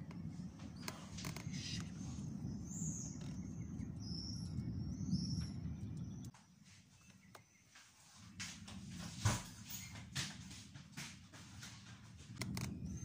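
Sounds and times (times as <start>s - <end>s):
distant thunder rumbling: 0.0s - 6.3s.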